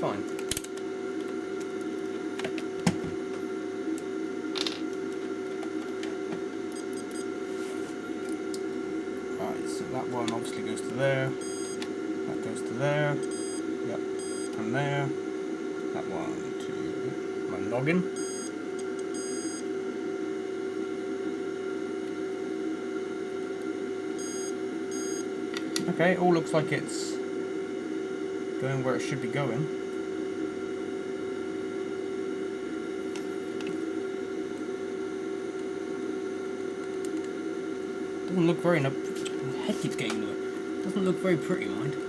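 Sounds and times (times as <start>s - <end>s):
steady background hum: 0.0s - 42.0s
short high-pitched beeps: 11.4s - 11.8s, 18.2s - 18.5s, 19.1s - 19.6s, 24.2s - 25.2s.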